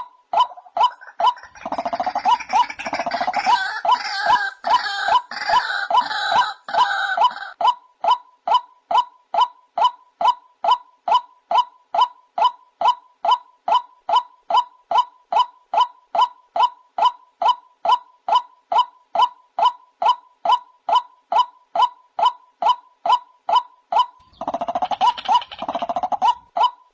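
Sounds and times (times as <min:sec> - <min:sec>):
waterhen calling: 0:00.4 - 0:07.6, 0:24.2 - 0:26.5
harsh noisy bird calling: 0:00.5 - 0:07.6, 0:24.0 - 0:26.8.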